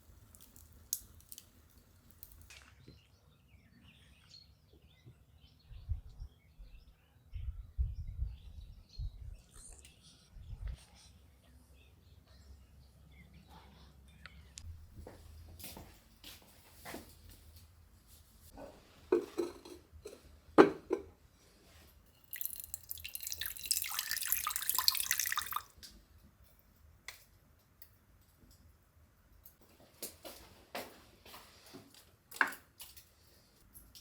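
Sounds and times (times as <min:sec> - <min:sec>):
water splashing into container: 0:22.2 - 0:25.7.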